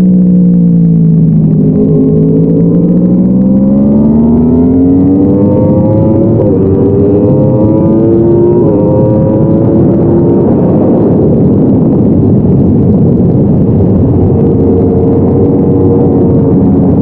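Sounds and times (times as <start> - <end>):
heavy wind rush: 0.0 - 17.0
motorcycle engine accelerating hard: 0.0 - 17.0.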